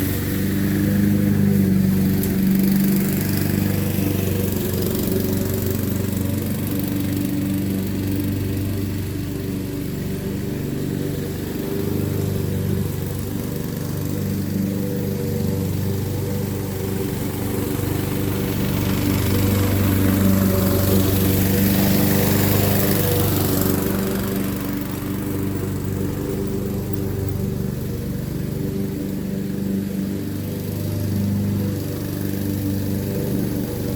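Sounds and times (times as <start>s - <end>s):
lawn mower engine running: 0.0s - 33.9s.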